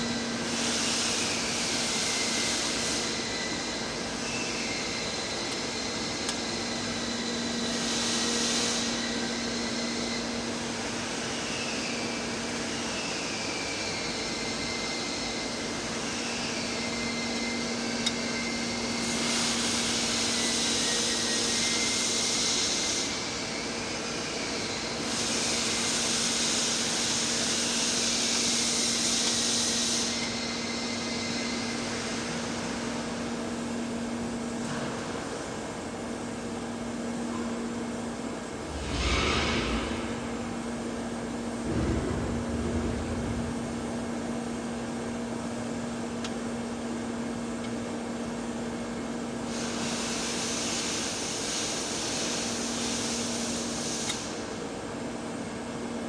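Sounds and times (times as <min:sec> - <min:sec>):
steady hum: 0:38.2 - 0:47.6.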